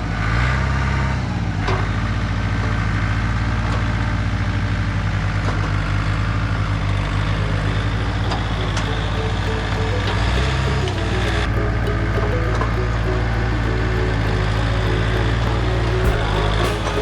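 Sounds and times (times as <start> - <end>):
heavy machine engine running: 6.1 - 17.0.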